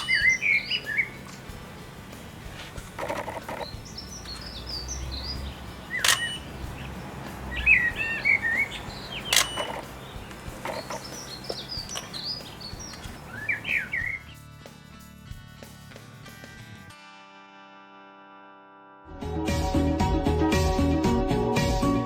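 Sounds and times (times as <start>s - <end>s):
sharp clicks: 0.0s - 1.5s, 2.1s - 14.1s
small birds singing: 0.0s - 14.5s.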